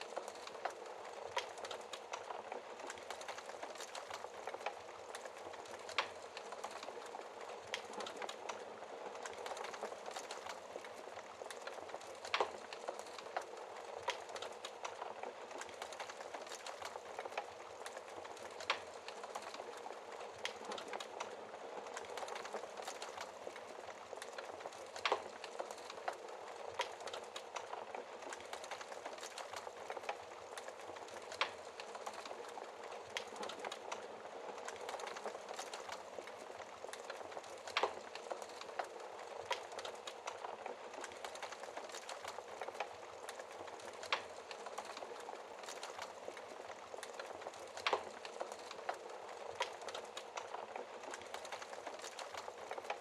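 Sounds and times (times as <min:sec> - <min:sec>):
fireplace fire crackling: 0:00.0 - 0:53.0.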